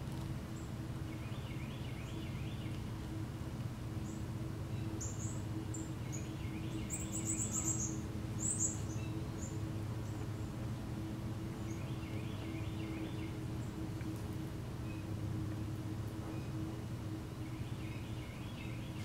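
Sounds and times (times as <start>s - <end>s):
steady low hum: 0.0s - 19.0s
small birds chirping: 4.0s - 14.2s, 17.4s - 19.0s.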